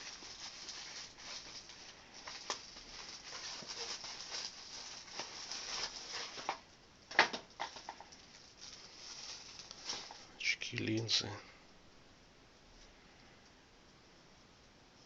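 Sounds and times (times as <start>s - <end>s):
glasses handling rustling: 0.0s - 11.2s.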